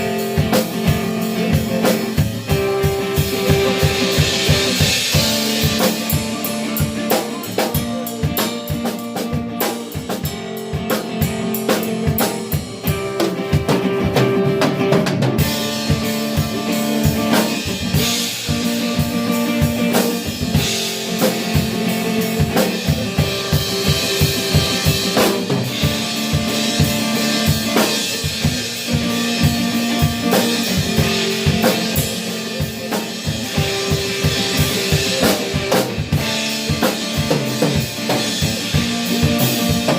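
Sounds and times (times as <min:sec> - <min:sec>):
busy drum kit: 0:00.0 - 0:39.9
live band playing: 0:00.0 - 0:39.9.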